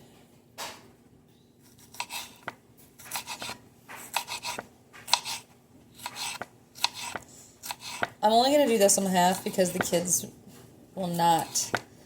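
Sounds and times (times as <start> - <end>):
knife cutting on cutting board: 1.7 - 8.2.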